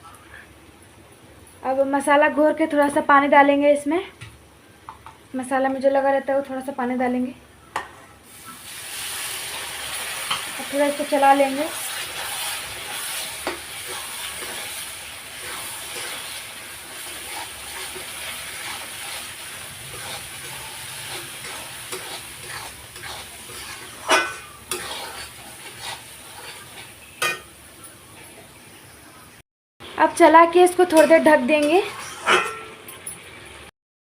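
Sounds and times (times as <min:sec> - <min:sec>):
spice paste sizzling in a pan: 0:08.3 - 0:27.8
utensil scraping a pan: 0:09.1 - 0:27.4, 0:30.9 - 0:32.9.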